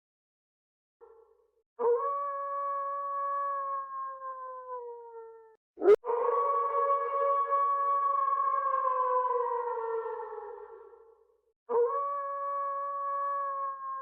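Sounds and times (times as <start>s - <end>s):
wolf howling: 1.8s - 10.8s.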